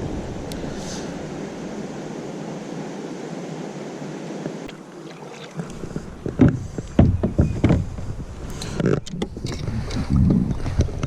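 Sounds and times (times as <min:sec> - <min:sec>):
flowing river water: 0:00.0 - 0:11.0
wind: 0:00.0 - 0:11.0.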